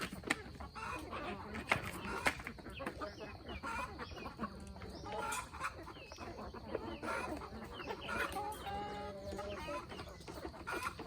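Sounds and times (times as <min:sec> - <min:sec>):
chickens clucking: 0:00.0 - 0:11.0
chicken drawn-out call: 0:00.2 - 0:11.0.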